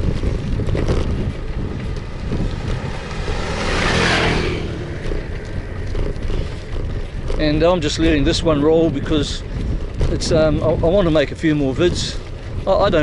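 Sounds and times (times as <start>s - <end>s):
vehicle passing: 0.0s - 10.1s
road noise: 0.0s - 13.0s
wind rumbling on microphone: 0.0s - 13.0s.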